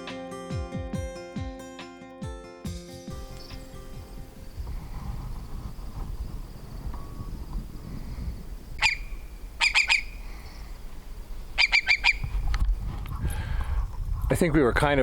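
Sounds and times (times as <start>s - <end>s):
marsh bird harsh calls: 8.8s - 10.7s, 11.6s - 12.3s.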